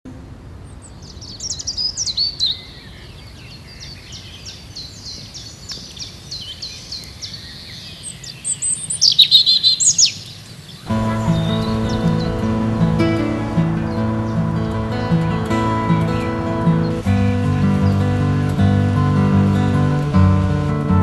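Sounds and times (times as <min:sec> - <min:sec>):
birds singing: 0:00.6 - 0:20.8
low steady hum: 0:10.9 - 0:21.0.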